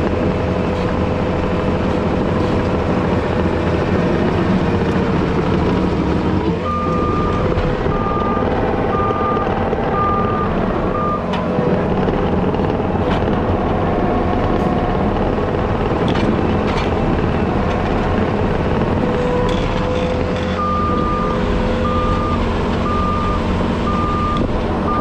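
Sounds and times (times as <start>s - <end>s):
diesel engine of heavy machine: 0.0s - 25.0s
backup alarm beeping: 6.6s - 11.3s, 20.6s - 25.0s.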